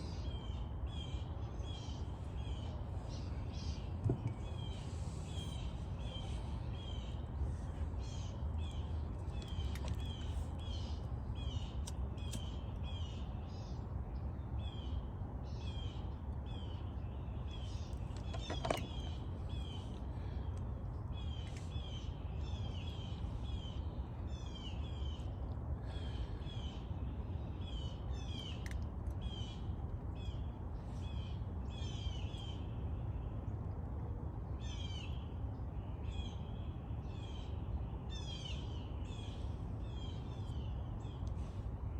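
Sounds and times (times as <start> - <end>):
birds chirping: 0.0 - 32.7.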